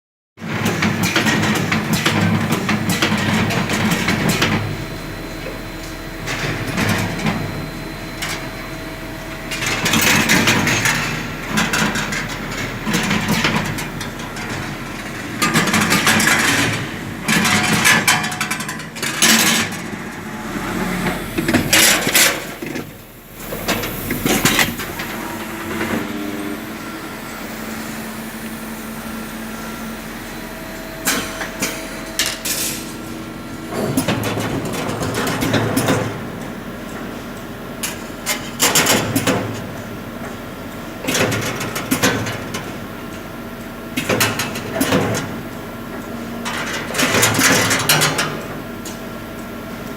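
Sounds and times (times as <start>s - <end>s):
machine hum: 0.4s - 41.9s
wire-bending machine clanking: 0.5s - 26.2s, 30.8s - 40.4s.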